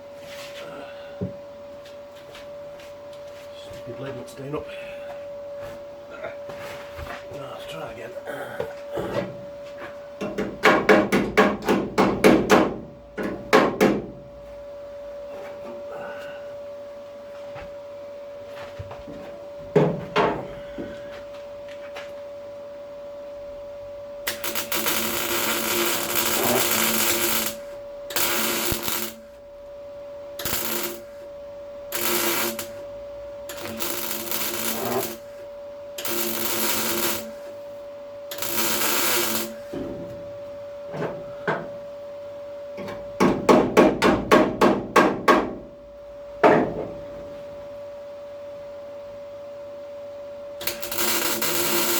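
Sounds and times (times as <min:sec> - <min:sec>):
welder hum: 0:20.4 - 0:40.6, 0:50.5 - 0:51.9
welder crackling and hissing: 0:24.2 - 0:29.4, 0:30.4 - 0:31.3, 0:31.9 - 0:32.9, 0:33.5 - 0:35.4, 0:36.0 - 0:37.6, 0:38.3 - 0:39.7, 0:50.6 - 0:51.9.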